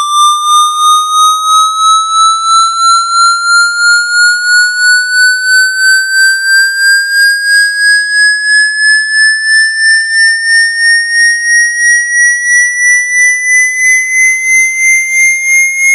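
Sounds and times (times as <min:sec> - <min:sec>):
buzzy rising electronic tone: 0:00.0 - 0:09.6.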